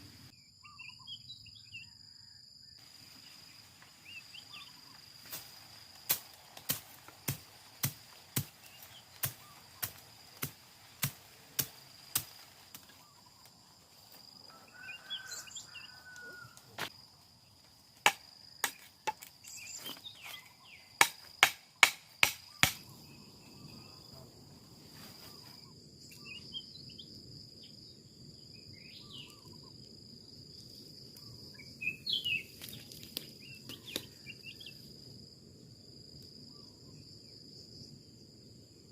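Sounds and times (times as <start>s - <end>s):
high drone of insects: 0.0s - 38.9s
sharp chopping strikes: 5.3s - 12.8s, 18.0s - 19.3s, 21.0s - 22.9s.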